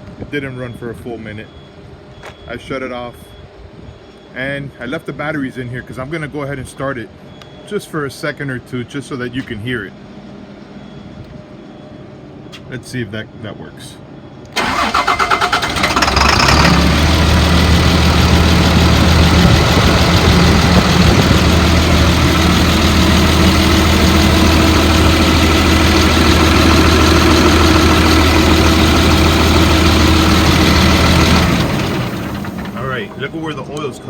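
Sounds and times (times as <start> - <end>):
bus engine starting and idling: 14.5 - 34.0.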